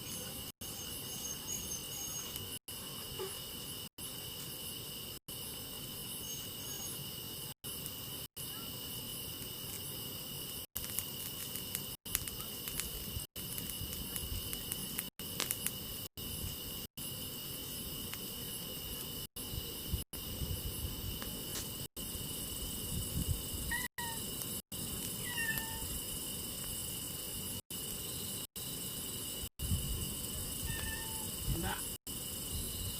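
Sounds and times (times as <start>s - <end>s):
crickets chirping: 0.0s - 32.9s
faint crackles: 7.7s - 16.6s
cat meowing: 23.7s - 24.2s, 25.2s - 25.9s, 30.6s - 31.3s.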